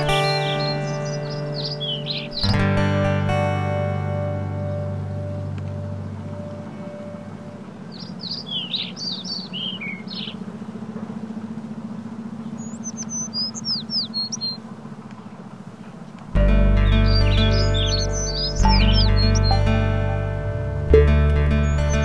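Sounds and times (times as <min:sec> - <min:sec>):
small birds twittering: 0:00.0 - 0:02.6, 0:04.5 - 0:20.2, 0:20.9 - 0:22.0
low steady hum: 0:00.0 - 0:22.0
loud music: 0:16.4 - 0:22.0.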